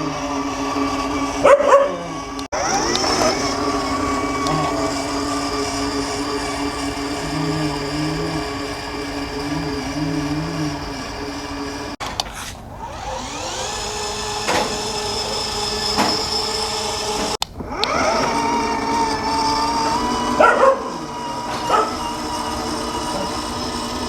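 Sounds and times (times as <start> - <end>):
ride-on toy car motors whining: 0.0 - 24.0.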